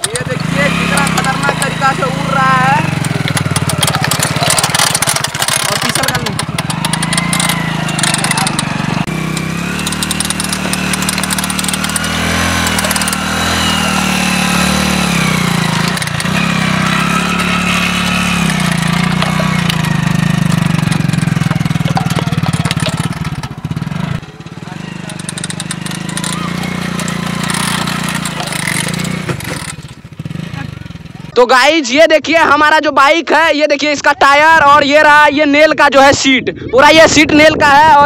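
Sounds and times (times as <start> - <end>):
rattle of sharp clicks: 0.0 - 2.3, 2.9 - 24.2, 25.0 - 30.0
small motorcycle engine: 0.0 - 31.4.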